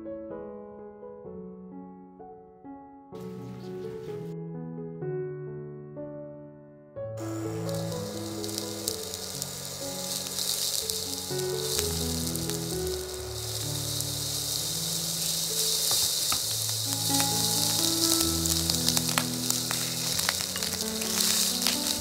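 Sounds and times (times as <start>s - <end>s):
soft background music: 7.1s - 22.0s
food sizzling in oil: 7.3s - 22.0s.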